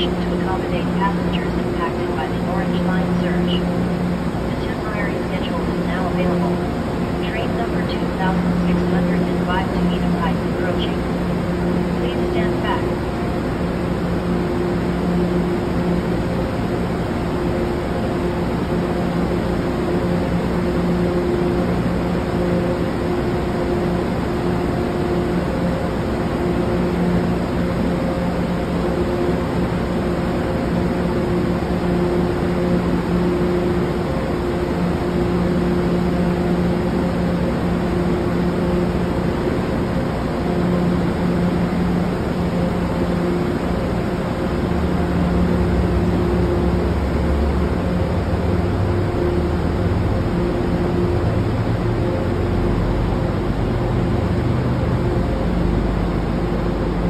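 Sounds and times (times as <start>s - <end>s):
train machinery humming: 0.0s - 57.0s.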